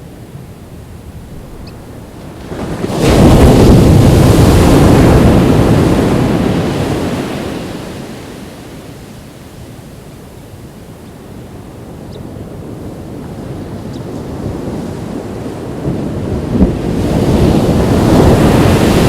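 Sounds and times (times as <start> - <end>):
wind noise on microphone: 0.0 - 8.9, 10.5 - 19.0
wave breaking on beach: 1.9 - 9.2, 12.5 - 19.0.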